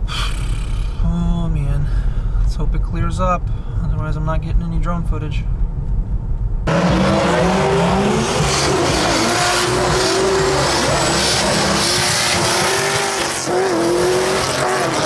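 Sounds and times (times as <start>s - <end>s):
car engines revving: 6.6s - 15.0s.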